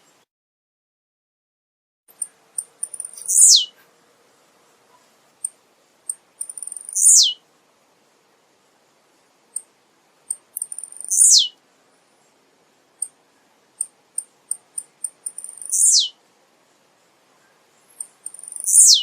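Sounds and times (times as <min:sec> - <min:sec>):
bird high chips: 0:02.2 - 0:03.7, 0:06.4 - 0:07.4, 0:10.3 - 0:11.5, 0:14.2 - 0:16.1, 0:18.0 - 0:19.0
bird song sliding downward: 0:02.9 - 0:03.7, 0:06.5 - 0:07.4, 0:10.6 - 0:11.5, 0:15.3 - 0:16.2, 0:18.0 - 0:19.0.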